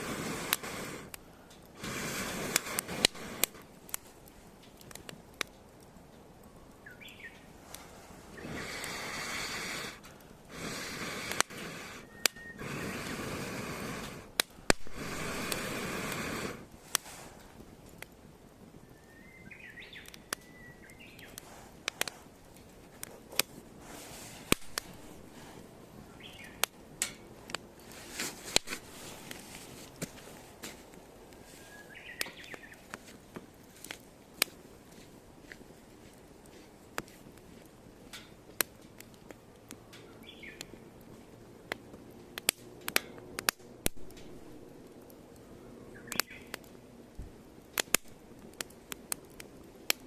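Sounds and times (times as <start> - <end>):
firewood crackling and popping: 0.0 - 50.0
small birds chirping: 6.5 - 7.6, 8.2 - 9.9, 10.6 - 13.2, 18.8 - 22.4, 24.4 - 26.8, 31.3 - 33.0, 39.7 - 40.8, 45.3 - 46.7.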